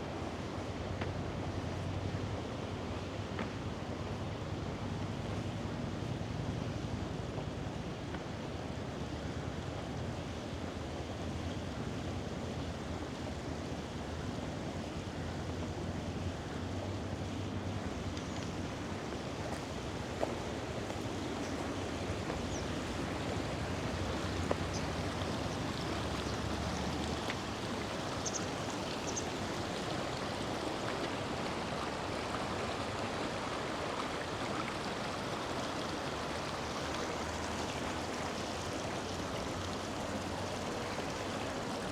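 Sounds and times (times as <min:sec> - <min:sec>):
river water rushing: 0:12.6 - 0:41.9.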